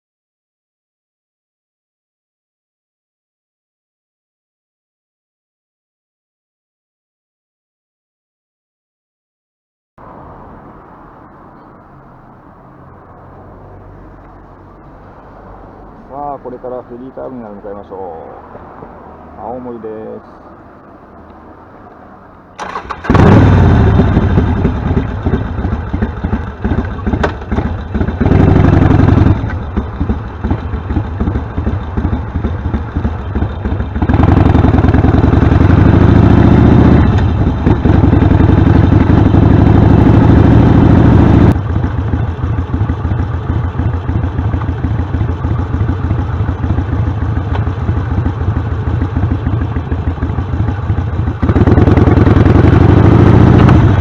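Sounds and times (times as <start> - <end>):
motorcycle engine revving loud: 22.6 - 54.0.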